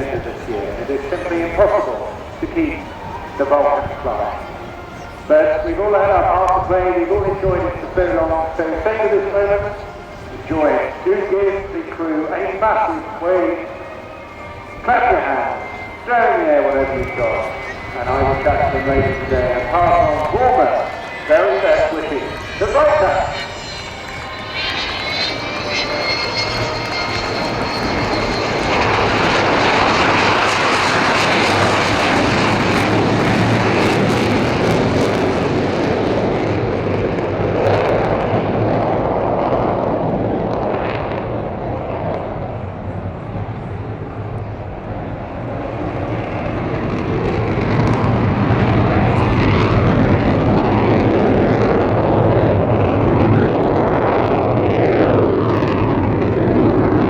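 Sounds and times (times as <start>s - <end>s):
high whistling whine: 0.0s - 36.5s
jet aircraft roaring past: 0.0s - 57.0s.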